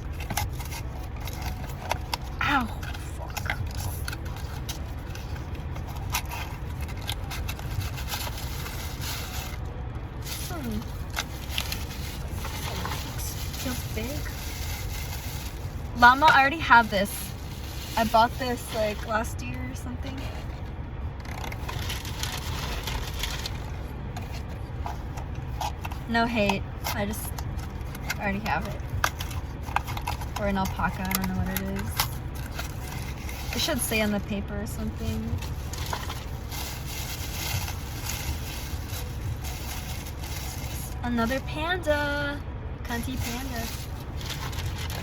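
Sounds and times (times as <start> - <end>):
cardboard packaging rustling: 0.0 - 19.2, 21.2 - 34.2, 34.8 - 41.5, 42.8 - 45.0
steady low rumble: 0.0 - 45.0
cardboard and paper tearing: 21.2 - 26.2, 42.9 - 45.0.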